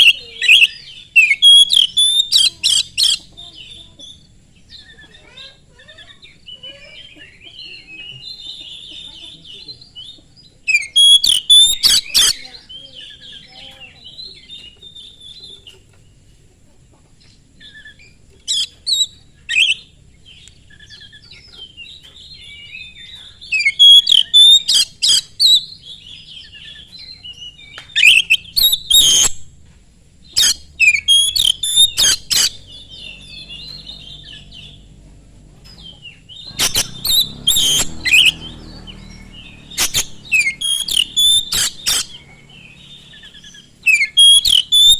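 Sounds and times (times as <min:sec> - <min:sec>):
bird singing whistles and rasps: 0:00.0 - 0:15.8, 0:17.6 - 0:29.6, 0:30.2 - 0:34.9, 0:35.8 - 0:44.9
quiet bird twittering: 0:00.0 - 0:44.9.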